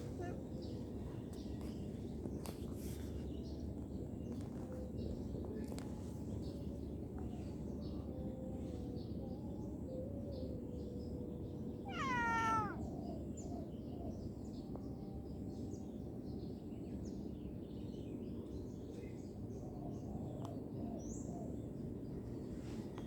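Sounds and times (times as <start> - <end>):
cat meowing: 0.0 - 0.4, 11.8 - 12.9
low background noise: 0.0 - 23.0.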